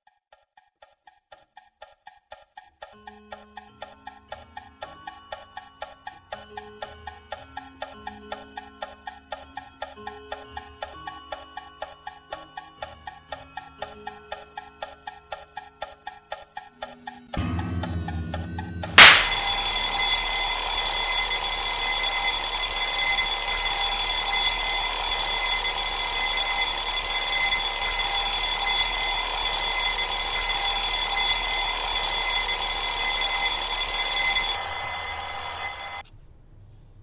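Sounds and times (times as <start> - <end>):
bell alarm clock ringing: 19.0 - 36.0.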